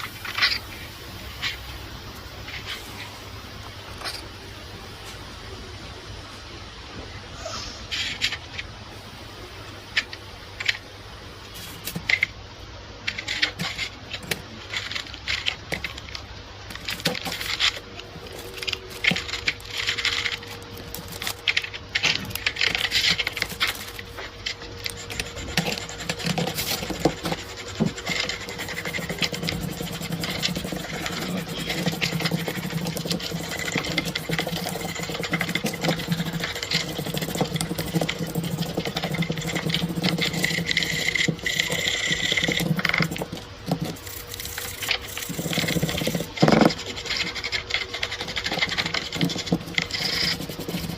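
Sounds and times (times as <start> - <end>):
metallic clicking and scraping: 11.5 - 50.9.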